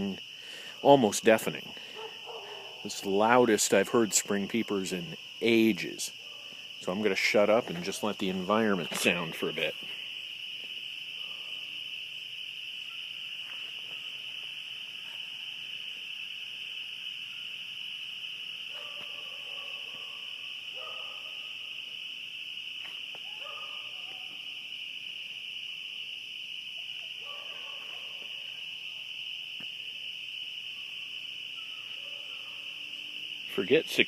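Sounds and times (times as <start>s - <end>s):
spring peepers chorus: 0.0s - 34.0s
lower-pitched calls: 30.7s - 33.2s.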